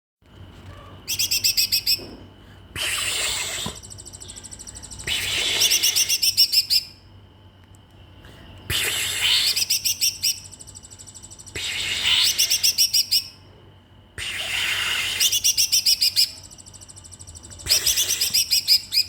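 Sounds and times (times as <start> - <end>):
songbird singing: 1.0 - 2.1, 2.8 - 7.1, 9.2 - 13.5, 15.1 - 19.0.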